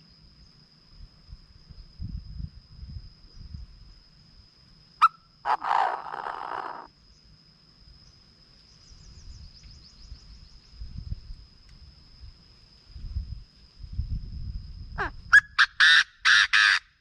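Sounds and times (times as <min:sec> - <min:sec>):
high insect drone: 0:00.0 - 0:17.0
bird calling harshly: 0:05.0 - 0:06.9, 0:15.0 - 0:16.9.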